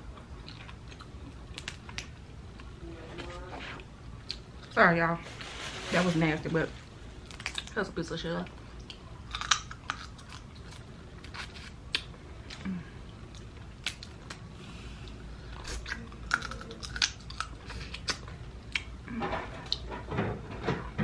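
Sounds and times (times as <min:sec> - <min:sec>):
person chewing and smacking: 0:00.1 - 0:03.4, 0:08.8 - 0:14.5, 0:15.1 - 0:19.0
crab shell cracking: 0:08.8 - 0:12.1.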